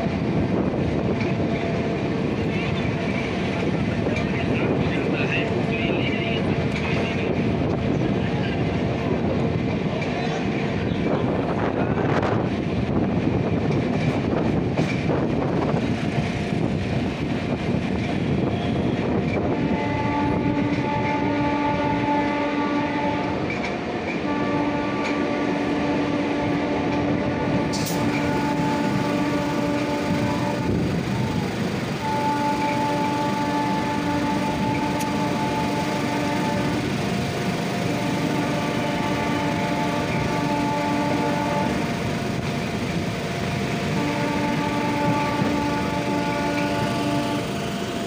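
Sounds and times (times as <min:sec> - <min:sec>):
train wheel and rail noise: 0:00.0 - 0:48.0
train horn blast: 0:18.2 - 0:48.0.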